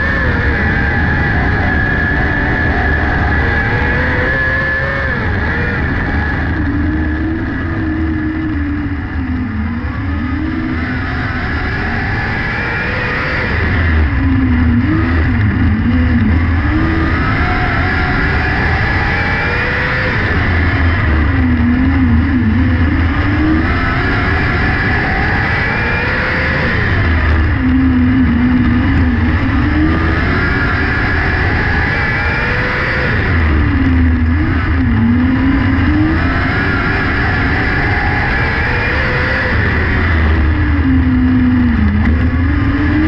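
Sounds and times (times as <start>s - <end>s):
racing motorcycle engine: 0.0s - 43.0s.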